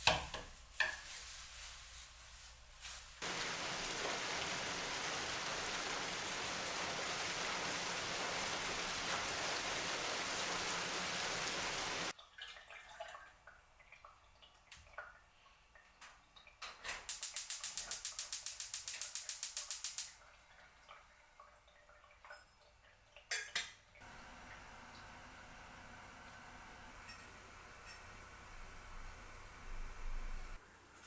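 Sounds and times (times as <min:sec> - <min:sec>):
heavy rainfall hiss: 0:03.2 - 0:12.1.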